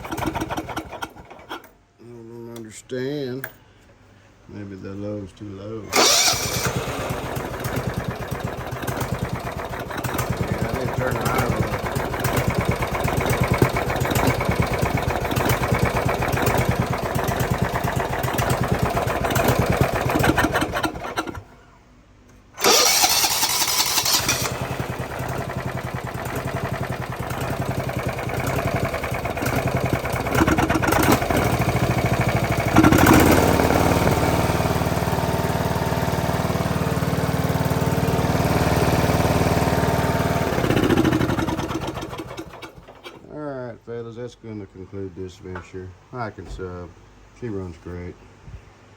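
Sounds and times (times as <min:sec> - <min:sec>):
riding mower engine running: 0:00.0 - 0:01.7, 0:05.9 - 0:21.5, 0:22.6 - 0:43.3.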